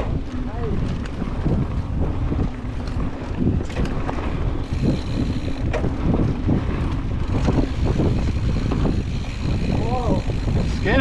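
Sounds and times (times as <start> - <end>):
wind over microphone: 0.0 - 11.0
bike rattling and knocking: 0.9 - 11.0
bike tyres rolling on dirt: 4.6 - 6.4.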